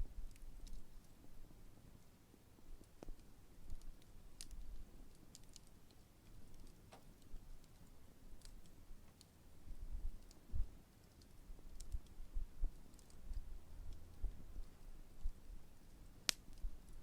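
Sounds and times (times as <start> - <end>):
campfire crackling and popping: 0.1 - 17.0
faint low rumble: 6.3 - 17.0.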